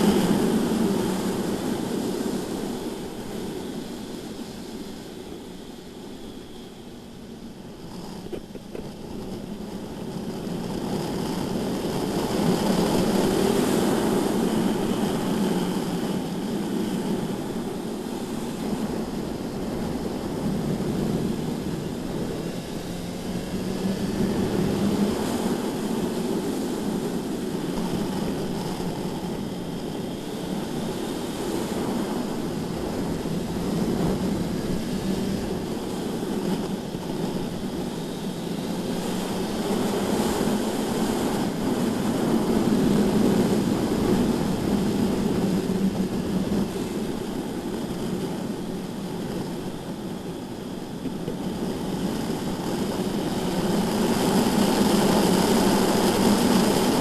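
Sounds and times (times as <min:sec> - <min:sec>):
wind noise: 0:00.0 - 0:57.0
motorcycle engine running: 0:18.7 - 0:30.6.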